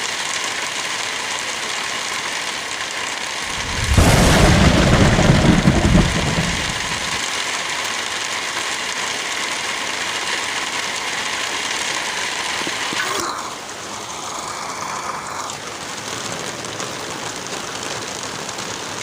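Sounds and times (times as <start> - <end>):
light rain: 0.0 - 19.0
strong wind gust rumble: 3.5 - 7.2
wind blowing through trees: 3.5 - 7.2.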